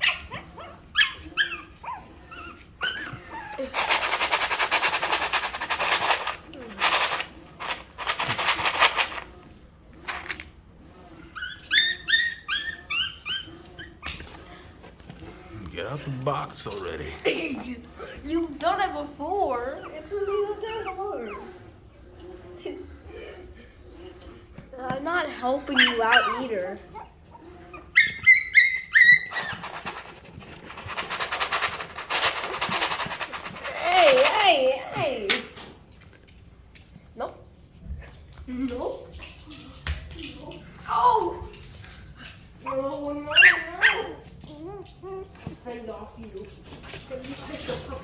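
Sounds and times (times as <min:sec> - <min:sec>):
puppy yelping: 0:00.0 - 0:04.5, 0:11.3 - 0:14.4, 0:25.7 - 0:30.2, 0:42.6 - 0:45.6
puppies scratching at box: 0:00.0 - 0:09.4, 0:25.7 - 0:35.2.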